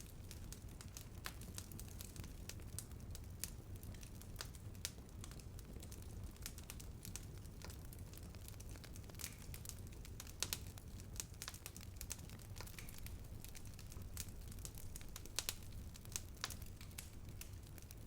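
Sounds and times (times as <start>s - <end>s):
open fire crackling: 0.0s - 18.0s.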